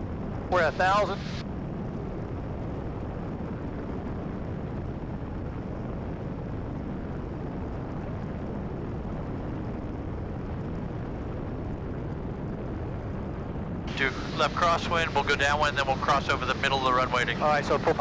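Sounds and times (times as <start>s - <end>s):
light aircraft engine drone: 0.0s - 18.0s.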